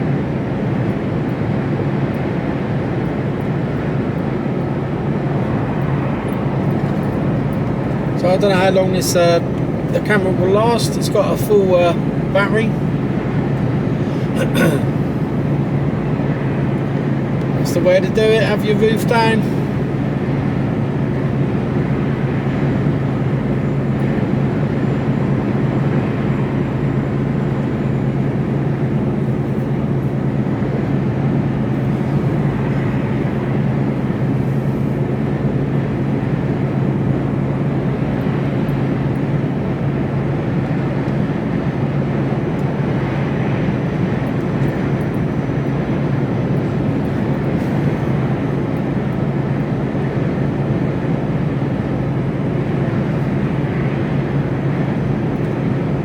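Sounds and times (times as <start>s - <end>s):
lorry diesel engine droning: 0.0s - 56.0s
road noise: 0.0s - 56.0s.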